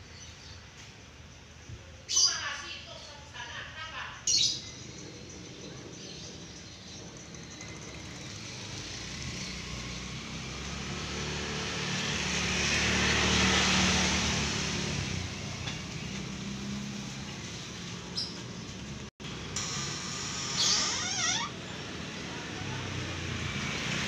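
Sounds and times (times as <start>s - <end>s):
car passing by: 7.8s - 18.2s, 21.8s - 24.0s.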